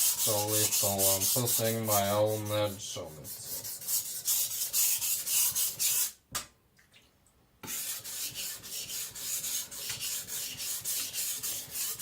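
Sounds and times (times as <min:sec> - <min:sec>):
blade scraping on whetstone: 0:07.7 - 0:12.0.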